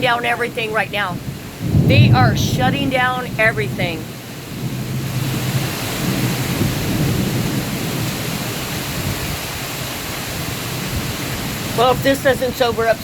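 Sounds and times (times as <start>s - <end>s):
heavy rain pouring: 0.0s - 13.0s
thunder rumbling: 0.0s - 13.0s.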